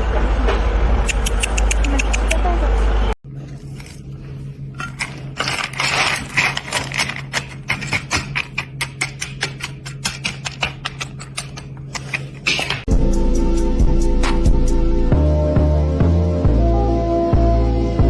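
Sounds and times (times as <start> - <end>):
sharp clicks: 1.0 - 2.4.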